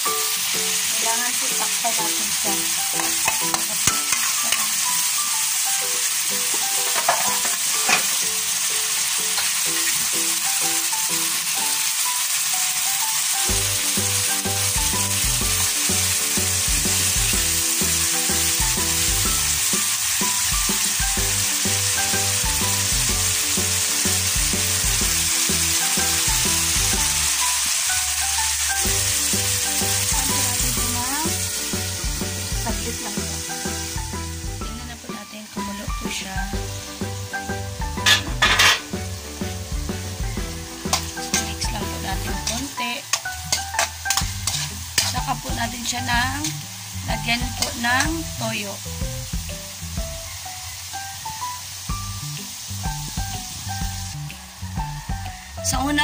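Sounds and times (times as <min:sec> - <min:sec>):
meat sizzling in hot oil: 0:00.0 - 0:56.0
metal spatula clicking on pan: 0:03.0 - 0:04.6, 0:42.5 - 0:45.1.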